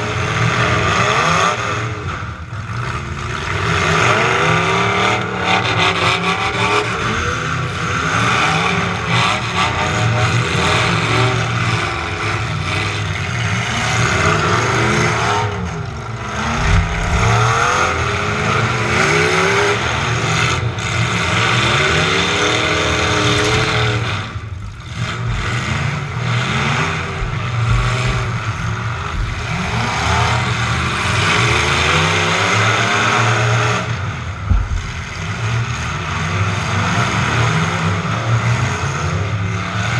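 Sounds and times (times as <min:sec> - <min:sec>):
truck engines revving: 0:00.0 - 0:39.9
trucks colliding thumps: 0:16.2 - 0:18.9, 0:23.3 - 0:30.5, 0:34.4 - 0:35.7.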